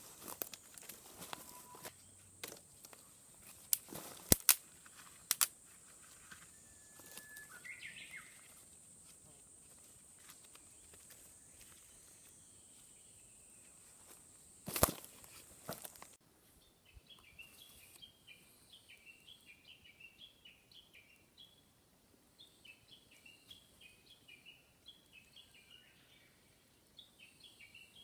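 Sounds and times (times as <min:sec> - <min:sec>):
bird calling: 0:01.2 - 0:02.1, 0:06.2 - 0:08.6
faint steady high tone: 0:01.2 - 0:02.2, 0:06.2 - 0:08.6.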